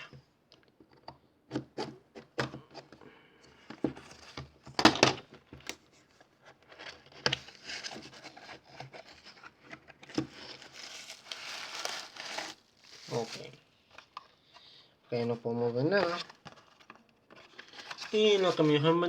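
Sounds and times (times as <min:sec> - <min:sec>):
cardboard rustling: 0:03.8 - 0:14.2, 0:15.8 - 0:19.0.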